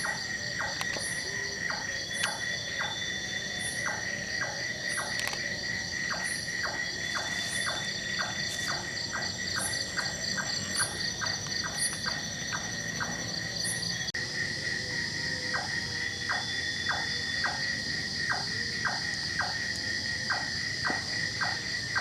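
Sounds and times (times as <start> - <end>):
sharp high insect chirps: 0.0 - 14.1
insects trilling: 0.0 - 22.0.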